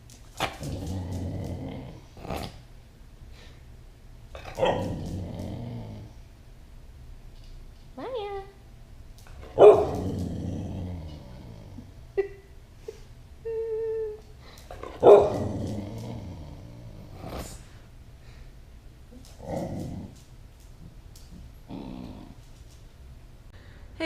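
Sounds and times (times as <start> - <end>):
dog barking: 9.6 - 10.0, 15.0 - 15.4.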